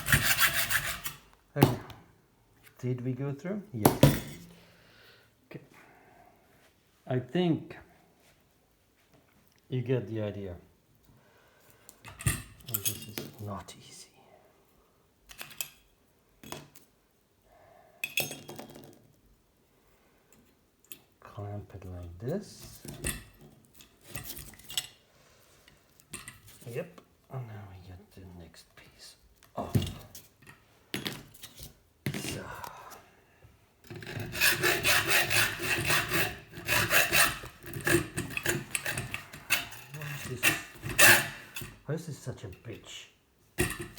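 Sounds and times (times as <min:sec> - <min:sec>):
hand saw rasping through metal: 0:00.0 - 0:01.3, 0:33.9 - 0:41.8.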